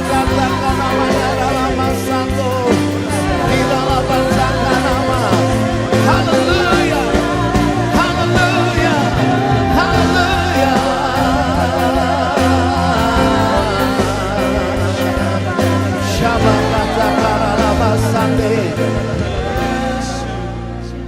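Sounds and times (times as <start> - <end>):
person singing: 0.0 - 21.0
worship band playing: 0.0 - 21.0.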